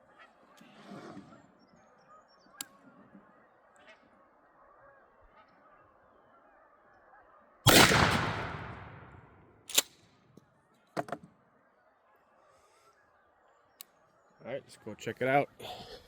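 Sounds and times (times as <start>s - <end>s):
shotgun blast: 7.7s - 9.8s.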